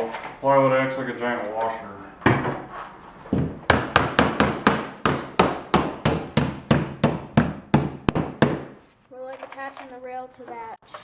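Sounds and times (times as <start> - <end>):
hammer striking plywood: 3.3 - 8.8.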